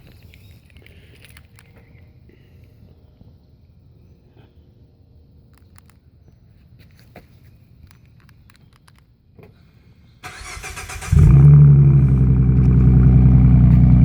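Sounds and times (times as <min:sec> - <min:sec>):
car starter cranking: 0:10.2 - 0:14.0
car engine idling loudly: 0:11.1 - 0:14.0.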